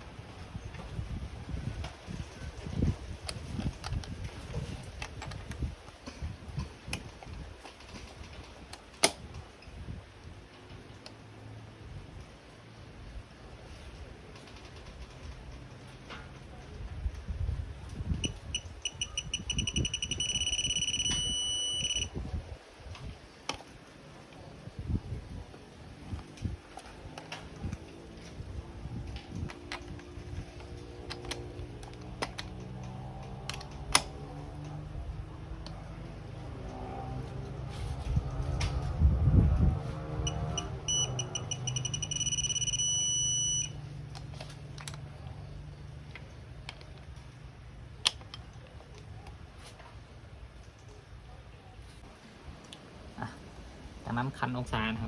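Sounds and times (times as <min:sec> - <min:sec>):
torque adapter beeping: 0:18.2 - 0:22.2, 0:40.2 - 0:45.0.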